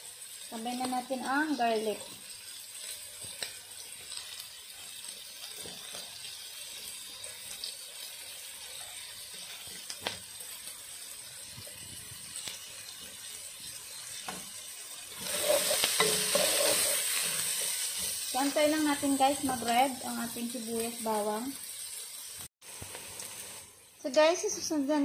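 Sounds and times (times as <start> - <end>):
onion frying in butter: 0.0 - 25.0
small pops in frying pan: 9.8 - 10.3.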